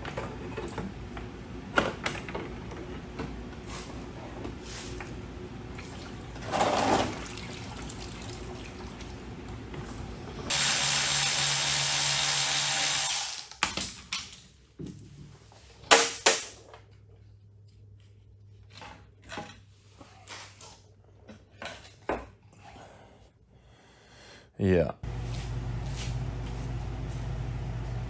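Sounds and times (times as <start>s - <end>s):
power tool running: 10.5s - 13.6s
low hum: 25.1s - 28.0s.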